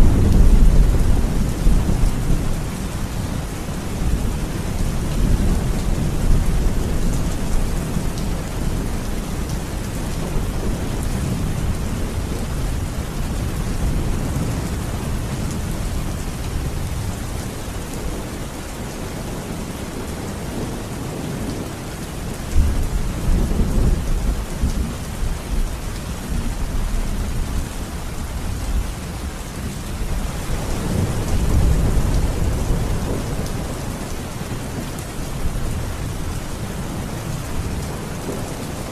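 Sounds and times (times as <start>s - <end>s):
rolling thunder: 0.0s - 18.4s
steady rain falling: 0.0s - 38.9s.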